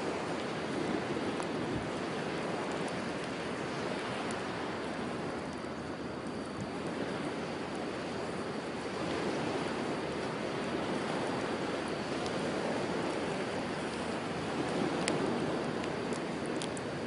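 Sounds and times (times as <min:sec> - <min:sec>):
campfire crackling: 0:00.0 - 0:17.0
sea waves washing on shore: 0:00.0 - 0:17.0.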